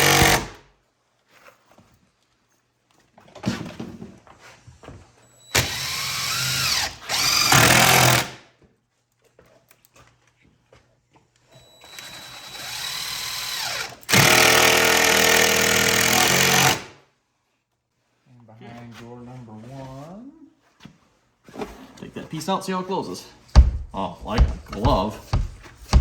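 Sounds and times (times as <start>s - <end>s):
power drill running: 0.0s - 0.6s, 5.5s - 8.4s, 11.5s - 16.9s
handling knocks: 23.5s - 26.0s.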